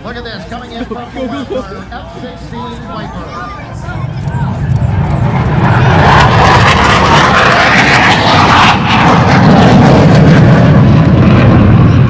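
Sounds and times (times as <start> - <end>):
fighter jet flying past: 3.7 - 12.0.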